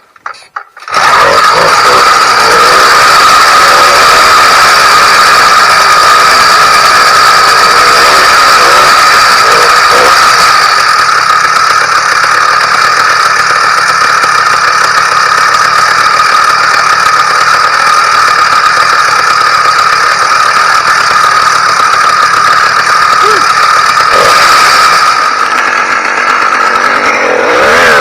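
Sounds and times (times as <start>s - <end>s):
engine rattle: 0.0s - 28.0s
two-stroke engine running: 0.0s - 28.0s.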